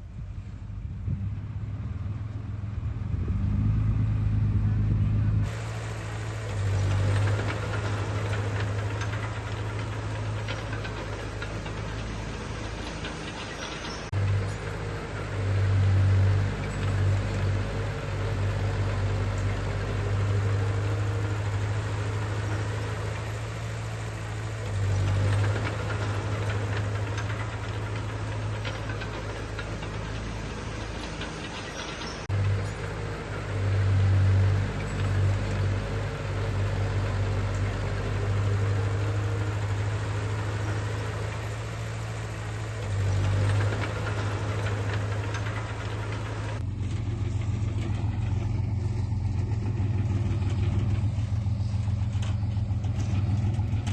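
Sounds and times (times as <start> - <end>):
heavy diesel engine running: 0.0 - 53.9
metal rattle: 5.4 - 53.9.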